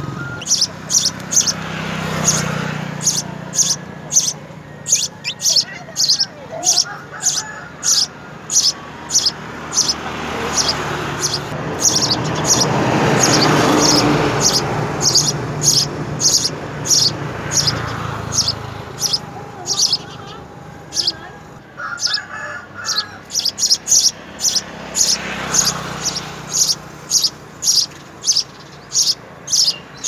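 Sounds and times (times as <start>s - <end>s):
broad rushing noise: 0.0s - 21.6s
small bird chirping: 0.0s - 22.2s, 22.8s - 30.0s.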